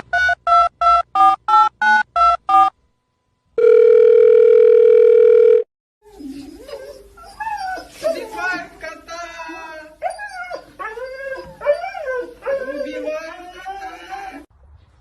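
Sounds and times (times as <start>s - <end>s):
steady phone line tone: 3.6s - 5.6s.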